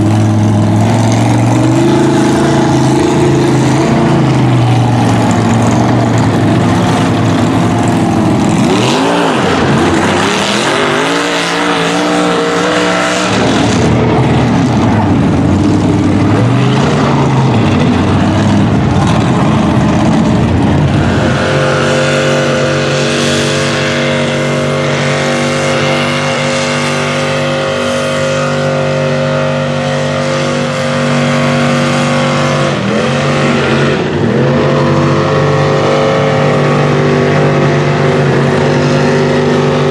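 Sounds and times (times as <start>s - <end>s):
truck engines revving: 0.0s - 39.9s.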